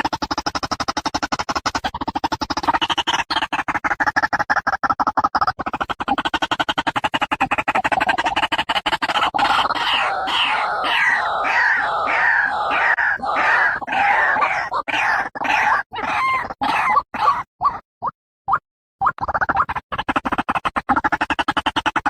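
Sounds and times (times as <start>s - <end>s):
waterhen calling: 9.4s - 17.8s.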